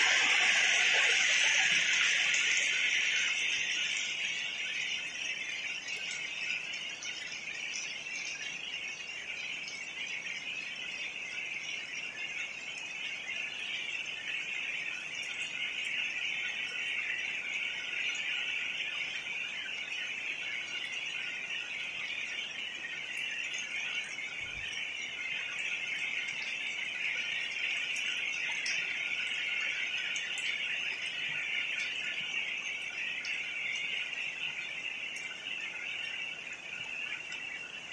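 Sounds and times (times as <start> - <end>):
chorus of calling animals: 0.0 - 6.7
rain hiss: 0.0 - 37.9.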